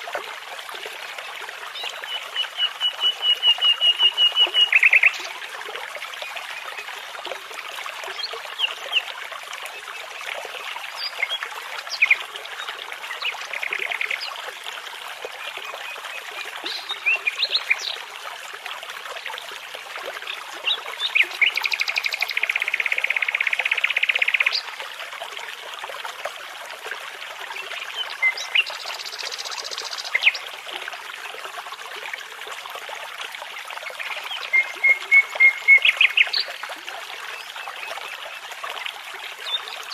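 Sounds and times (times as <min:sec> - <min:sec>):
brook babbling: 0:00.0 - 0:39.9.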